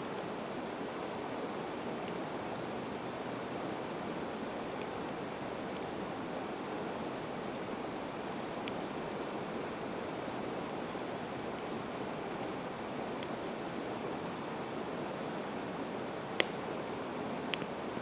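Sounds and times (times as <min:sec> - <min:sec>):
river rushing: 0:01.2 - 0:10.4
cricket chirping: 0:03.2 - 0:10.6
insect trill: 0:03.2 - 0:10.6.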